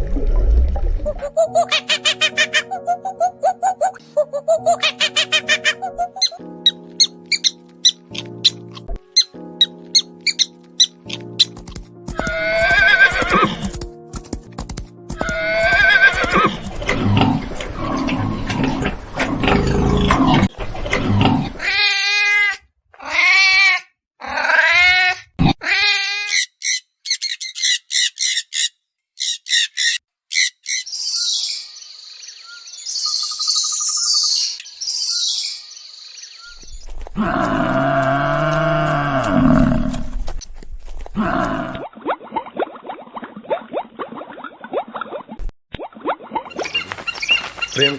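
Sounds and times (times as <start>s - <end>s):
farm animal calls: 46.6s - 47.9s.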